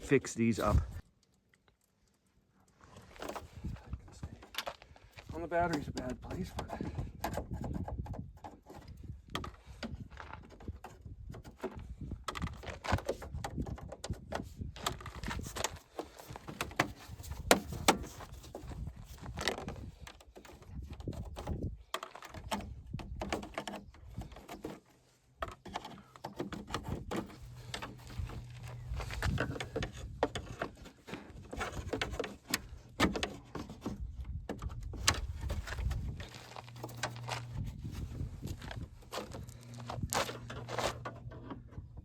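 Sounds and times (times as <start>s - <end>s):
low steady hum: 26.8s - 30.4s.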